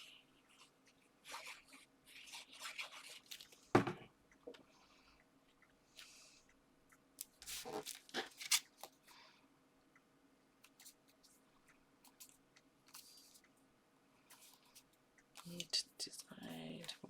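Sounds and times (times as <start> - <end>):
paper rustling: 7.4 - 9.0.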